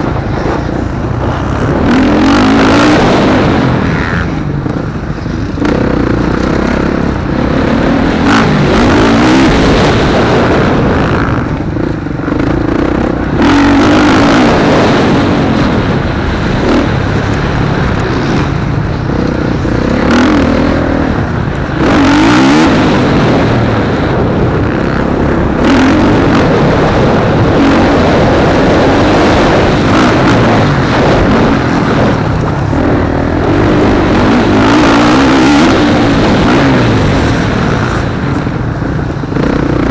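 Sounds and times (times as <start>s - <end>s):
motocross bike engines revving: 0.0s - 39.9s.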